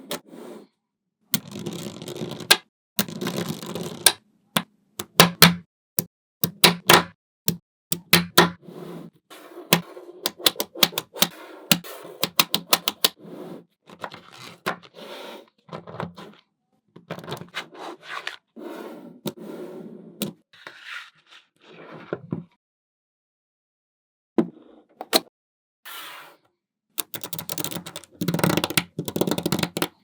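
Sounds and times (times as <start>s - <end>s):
magnetic balls clicking together: 27.0s - 30.0s.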